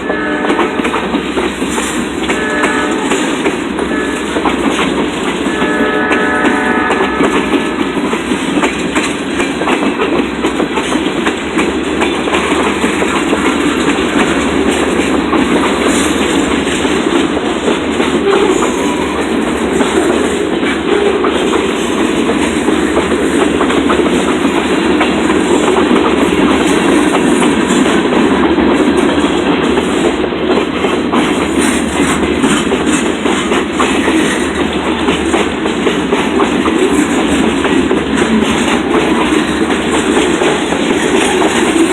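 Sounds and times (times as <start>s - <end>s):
train wheels clattering on rails: 0.0s - 41.9s.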